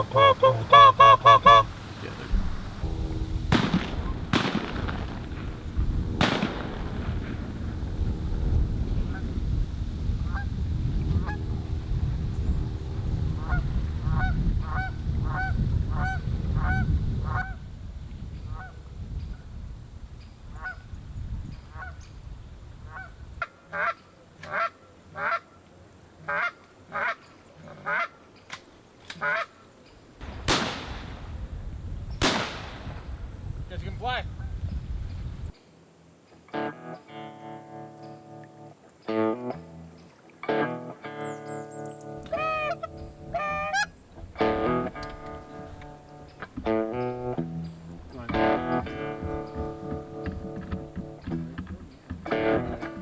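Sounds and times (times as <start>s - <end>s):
geese honking: 0.0s - 17.6s, 20.5s - 20.8s, 22.9s - 34.6s, 36.5s - 53.0s
low rumble: 1.7s - 17.4s
shotgun blasts: 2.6s - 9.2s, 30.2s - 34.1s.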